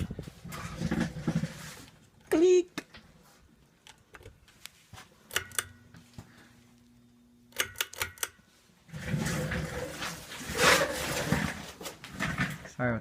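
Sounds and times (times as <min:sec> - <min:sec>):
rough handling noise: 0:00.0 - 0:06.9, 0:08.4 - 0:12.9
faint fan motor hum: 0:00.0 - 0:13.0
pull-chain switch clicking: 0:05.3 - 0:05.8, 0:07.5 - 0:08.4.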